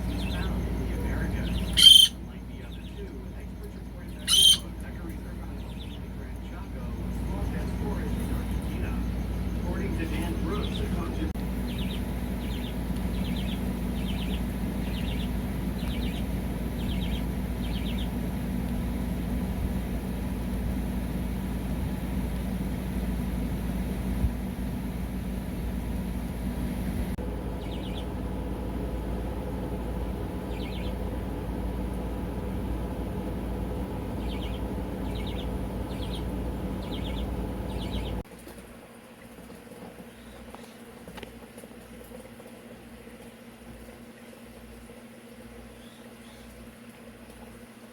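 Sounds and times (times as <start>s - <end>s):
steady mechanical hum: 0.0s - 47.9s
parrots calling harshly: 1.4s - 2.2s, 4.1s - 4.8s.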